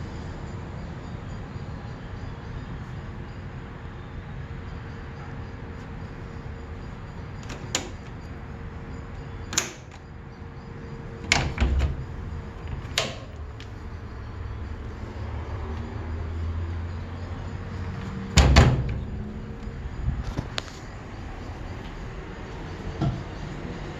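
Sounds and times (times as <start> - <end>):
steady low hum: 0.0 - 23.9
washing machine clicks and clunks: 7.4 - 8.2, 9.4 - 10.1, 11.2 - 13.8, 17.8 - 19.5, 23.0 - 23.3.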